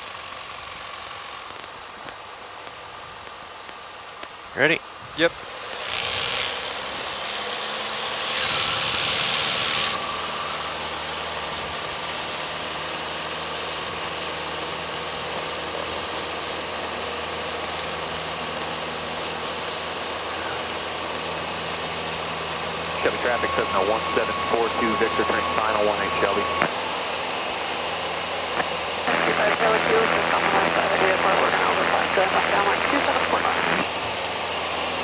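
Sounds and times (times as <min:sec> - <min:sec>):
aircraft engine through intercom: 0:15.2 - 0:35.0
intercom hiss: 0:23.0 - 0:27.0, 0:28.6 - 0:34.2.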